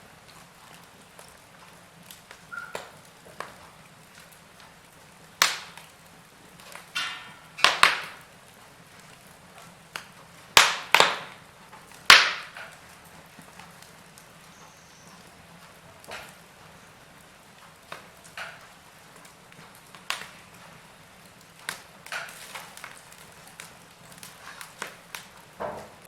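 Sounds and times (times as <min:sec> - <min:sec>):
fire hissing: 0:00.0 - 0:26.0
wood fire crackling and popping: 0:00.0 - 0:26.0.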